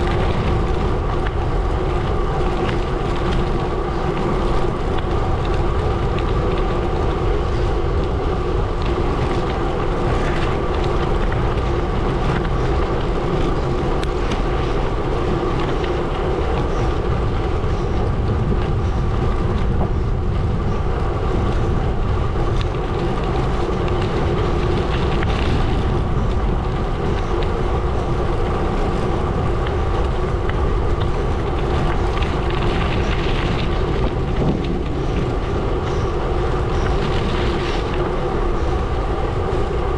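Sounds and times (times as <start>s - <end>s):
bike tyres crunching on gravel: 0.0s - 39.9s
constant hum: 0.0s - 39.9s.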